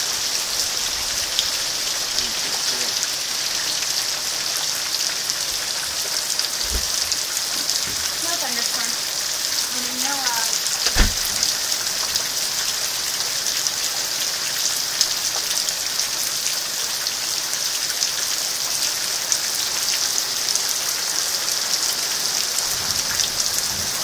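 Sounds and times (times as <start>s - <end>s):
steady rain pattering: 0.0s - 24.0s
low thump: 6.6s - 7.2s, 10.8s - 11.4s.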